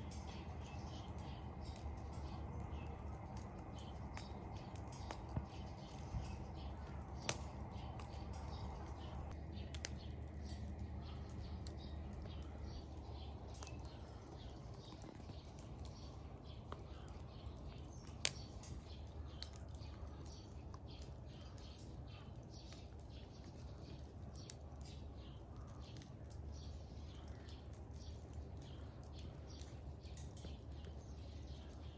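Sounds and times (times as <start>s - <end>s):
firewood crackling: 0.0s - 31.9s
low steady hum: 0.0s - 31.9s
sharp wood snaps: 3.3s - 13.9s.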